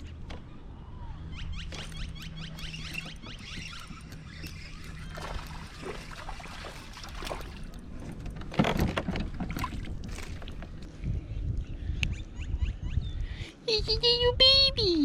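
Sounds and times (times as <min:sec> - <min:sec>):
water sloshing: 0:01.7 - 0:10.9
splashing: 0:04.8 - 0:07.8.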